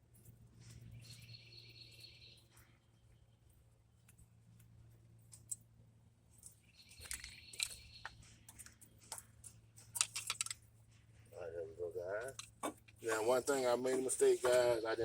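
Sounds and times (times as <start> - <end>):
steady low hum: 0.0 - 15.0
hand tools clicking and clinking: 8.5 - 10.6.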